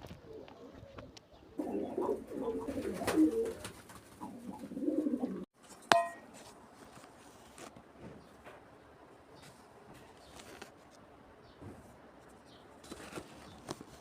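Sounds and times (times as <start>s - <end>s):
pigeons cooing: 0.0s - 5.5s
sharp ringing clink: 5.9s - 6.3s.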